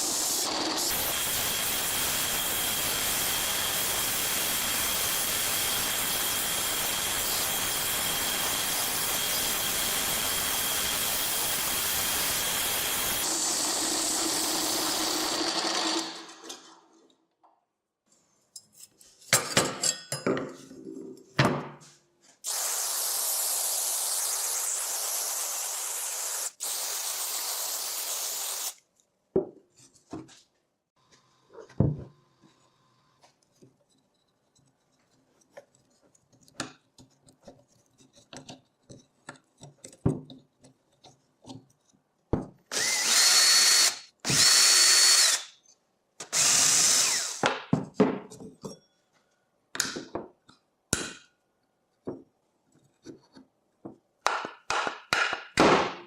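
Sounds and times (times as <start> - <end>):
handheld power tool running: 0.0 - 16.5, 22.5 - 28.8, 42.7 - 45.5, 46.2 - 47.5.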